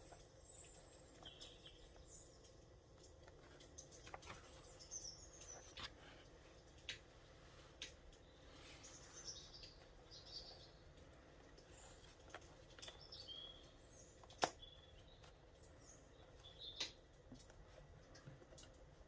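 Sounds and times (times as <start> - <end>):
faint birdsong: 0.0 - 19.0
sharp clicks and pops: 11.0 - 15.8, 16.6 - 19.0.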